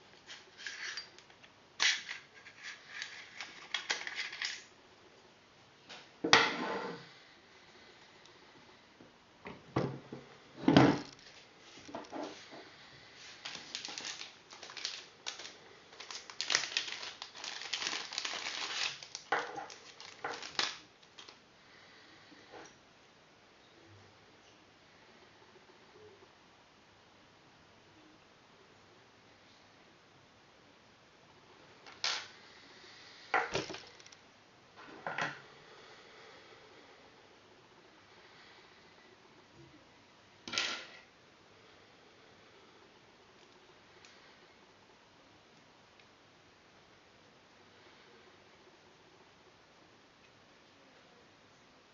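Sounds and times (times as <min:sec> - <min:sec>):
small parts clicking and rustling: 0:00.1 - 0:04.7, 0:13.2 - 0:21.4, 0:33.4 - 0:34.2.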